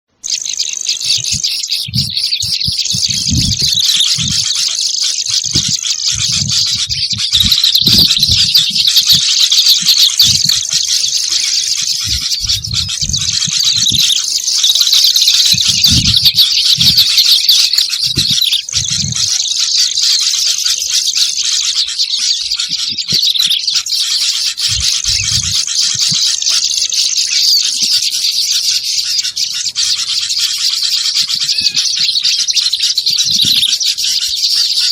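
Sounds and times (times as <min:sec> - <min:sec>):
birds chattering calls: 0:00.1 - 0:34.9
low thuds: 0:01.2 - 0:14.2.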